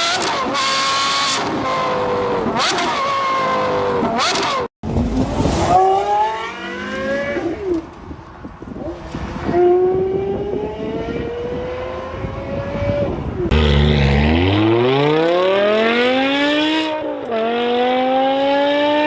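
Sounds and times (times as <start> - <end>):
sports car accelerating: 5.2 - 7.9, 8.8 - 19.0
car engine revving: 5.3 - 8.0, 13.5 - 19.0.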